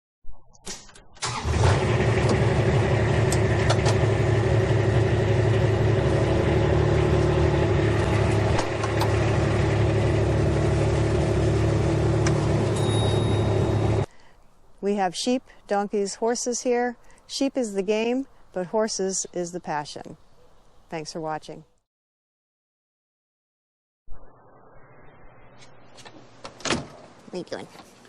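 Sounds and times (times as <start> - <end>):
engine starting and idling: 1.2 - 12.8.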